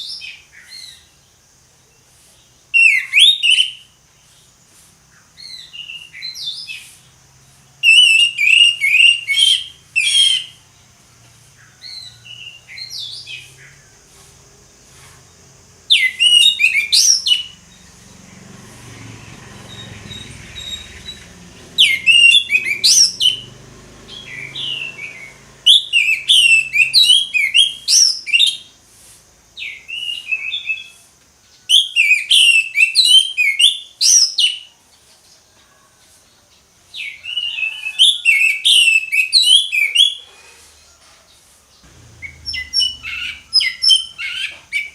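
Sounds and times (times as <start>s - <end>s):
bird singing whistled phrases: 2.8s - 3.9s, 7.8s - 10.6s, 15.9s - 17.6s, 21.8s - 23.4s, 24.1s - 28.7s, 29.6s - 31.0s, 31.7s - 34.7s, 37.0s - 40.3s, 42.1s - 44.9s.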